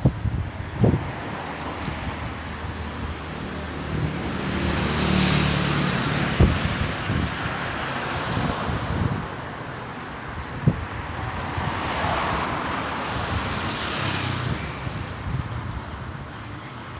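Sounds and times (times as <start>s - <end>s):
wind noise on microphone: 0.0s - 16.9s
vehicle passing: 0.8s - 9.2s.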